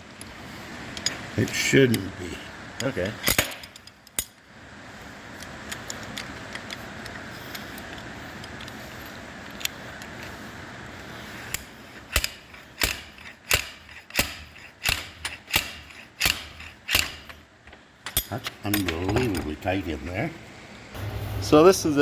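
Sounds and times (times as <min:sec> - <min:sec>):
sharp metal knocks: 0:12.1 - 0:17.4
metal tools clinking: 0:18.0 - 0:19.6.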